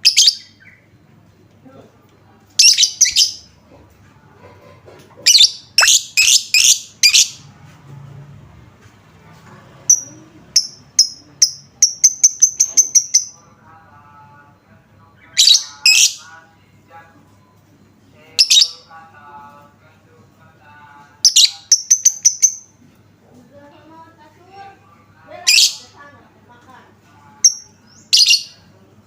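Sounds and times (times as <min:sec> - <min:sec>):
high ticking bird notes: 0:00.0 - 0:01.0, 0:02.6 - 0:03.6, 0:05.3 - 0:07.4, 0:09.9 - 0:13.4, 0:21.3 - 0:22.7.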